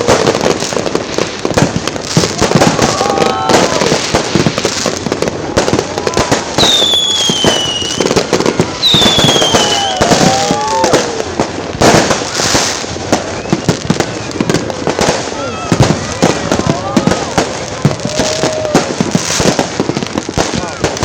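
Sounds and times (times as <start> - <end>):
fireworks bangs and crackling pops: 0.0 - 21.0
fireworks falling whistles: 0.0 - 21.0.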